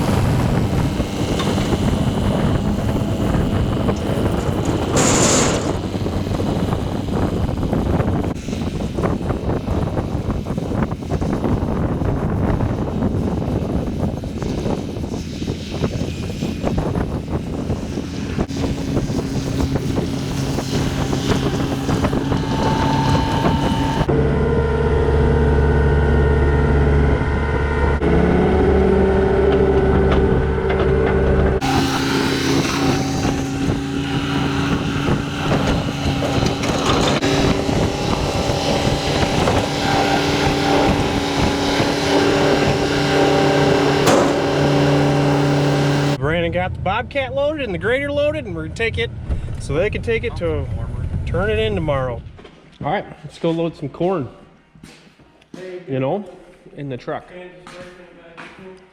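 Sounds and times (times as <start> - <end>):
rattling: 0.0 - 7.7, 18.5 - 24.1, 31.6 - 46.2
wind noise on microphone: 0.0 - 46.2, 49.1 - 52.4
vehicle engine hum: 0.0 - 46.8.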